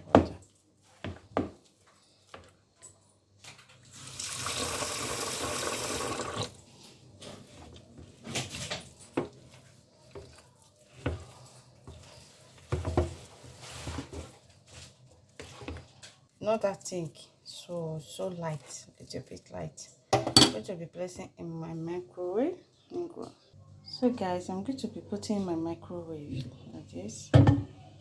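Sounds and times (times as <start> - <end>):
water pouring into a bowl: 3.9 - 6.6
batter stirred in a bowl: 7.3 - 19.4.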